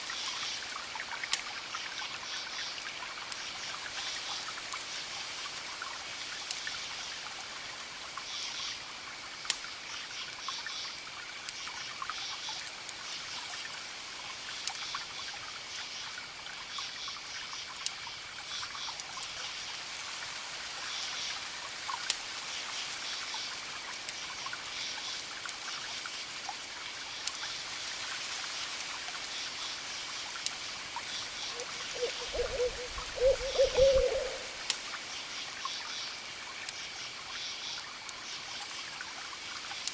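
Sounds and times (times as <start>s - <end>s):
campfire crackling and popping: 6.3s - 6.8s, 9.5s - 9.7s, 27.2s - 27.5s, 34.2s - 35.0s
crickets trilling: 31.0s - 34.7s
wavering animal call: 31.5s - 34.6s.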